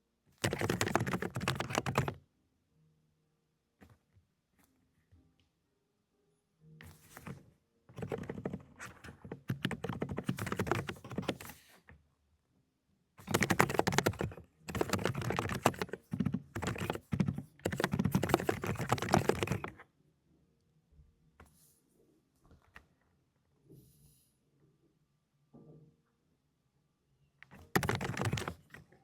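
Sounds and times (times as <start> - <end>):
fast typing on a keyboard: 0.4 - 2.2, 7.1 - 11.6, 13.2 - 19.8, 27.4 - 29.0.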